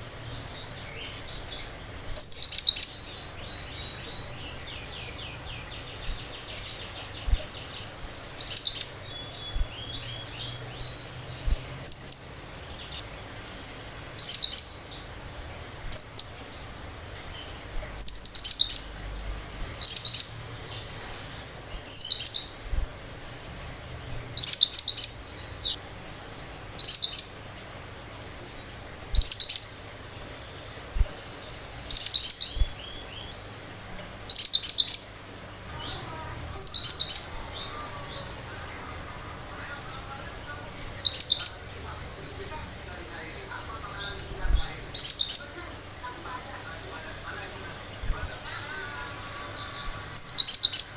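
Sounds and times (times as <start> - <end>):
faint bird chattering: 0.0 - 13.1, 13.7 - 19.1, 19.8 - 22.7, 24.3 - 25.8, 26.7 - 28.1, 28.7 - 33.6, 34.3 - 50.9
bird singing high bursts: 0.1 - 13.1, 34.3 - 41.7, 49.2 - 50.9.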